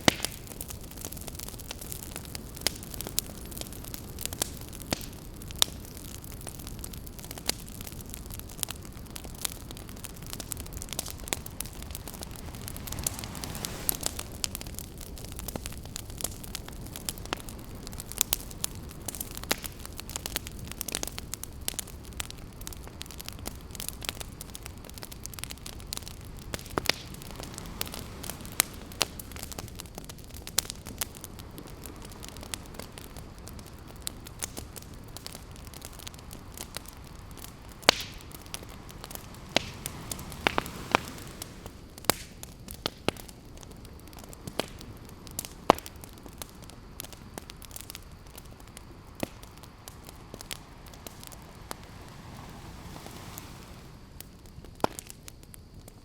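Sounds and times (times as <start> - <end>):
campfire crackling and popping: 0.0 - 56.0
ocean surf: 10.3 - 15.5, 25.7 - 29.7, 35.7 - 41.9, 49.3 - 54.3.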